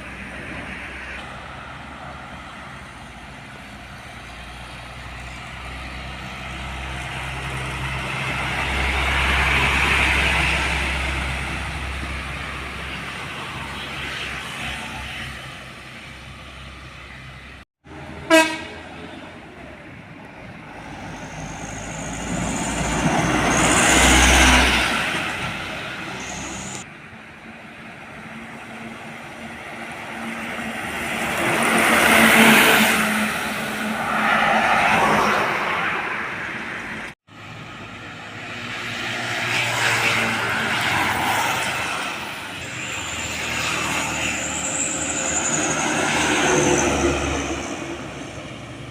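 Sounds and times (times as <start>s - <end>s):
heavy trucks passing: 0.0s - 48.9s
truck horn blast: 18.2s - 19.0s.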